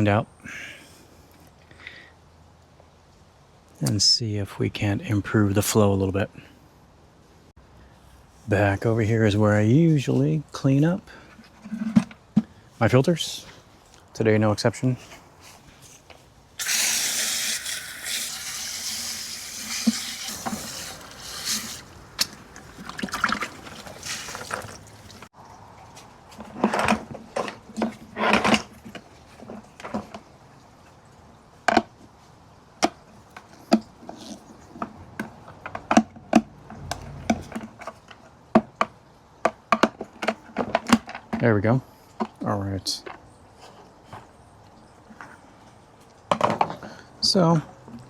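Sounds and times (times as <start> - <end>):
water running: 16.6 - 25.3
plastic parts clicking and knocking: 34.8 - 41.4.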